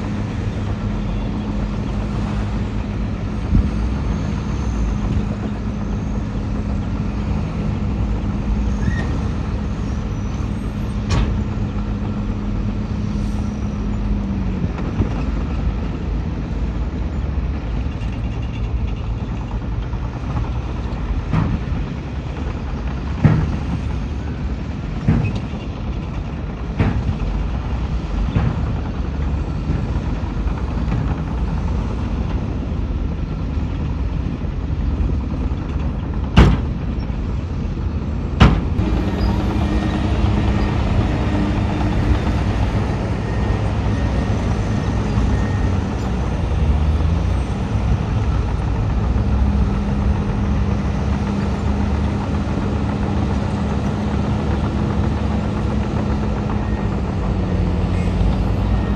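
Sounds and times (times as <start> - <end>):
diesel machinery running: 0.0 - 58.9.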